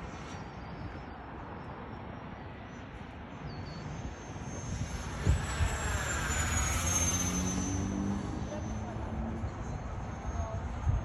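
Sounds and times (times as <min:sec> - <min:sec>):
model jet fan whining: 0:03.8 - 0:11.0.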